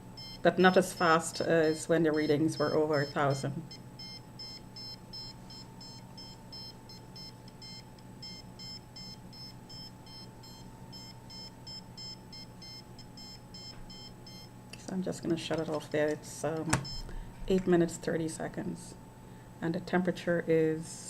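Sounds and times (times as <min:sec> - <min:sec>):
faint steady hum: 0:00.0 - 0:21.0
rapid high beeps from meter: 0:00.2 - 0:14.5, 0:16.8 - 0:17.1.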